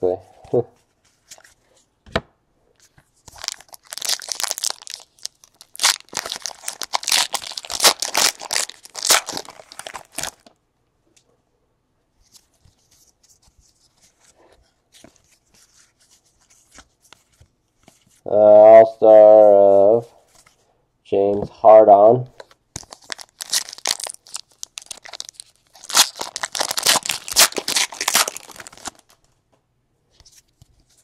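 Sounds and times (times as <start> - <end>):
plastic wrapper tearing and crinkling: 3.3 - 10.5, 22.8 - 29.2
cards being handled: 12.2 - 18.2, 22.4 - 29.3.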